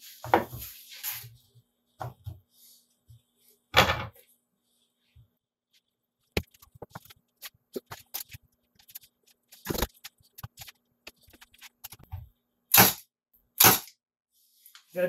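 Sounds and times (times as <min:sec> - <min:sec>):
stapler shots: 0:12.7 - 0:13.0, 0:13.6 - 0:14.0.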